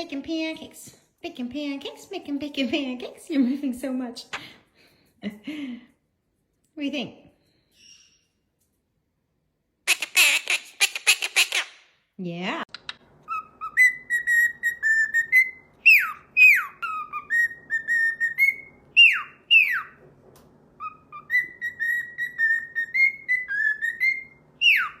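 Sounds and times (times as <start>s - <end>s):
parrot whistling: 13.2s - 20.0s, 20.8s - 25.0s.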